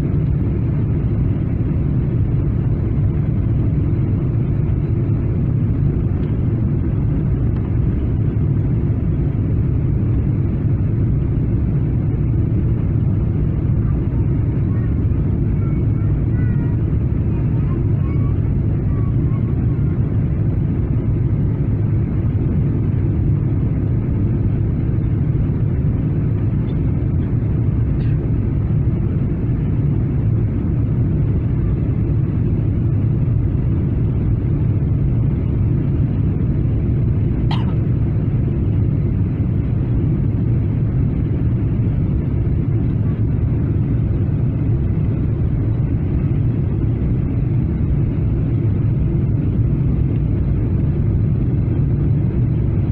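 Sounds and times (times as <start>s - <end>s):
airliner cabin drone: 0.0s - 52.9s.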